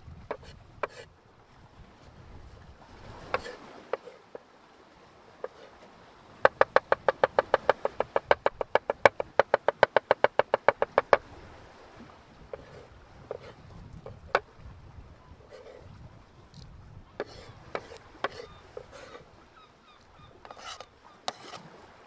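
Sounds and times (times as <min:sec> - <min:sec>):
knife chopping on cutting board: 0:17.2 - 0:18.9.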